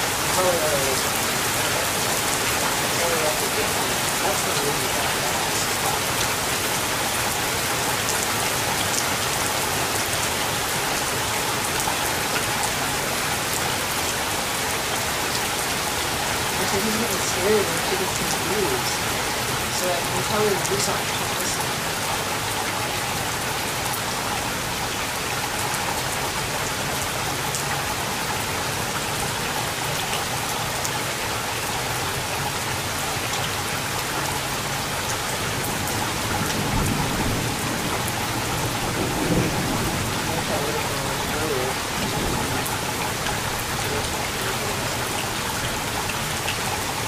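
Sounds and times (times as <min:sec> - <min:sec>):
steady rain falling: 0:00.0 - 0:47.0
low rumble of thunder: 0:35.5 - 0:45.1.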